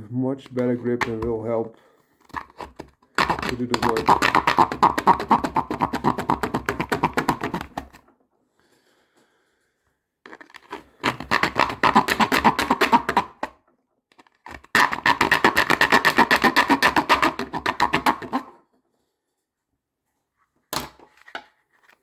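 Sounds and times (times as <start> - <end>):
serrated knife sawing: 2.4 - 7.6, 14.8 - 18.4.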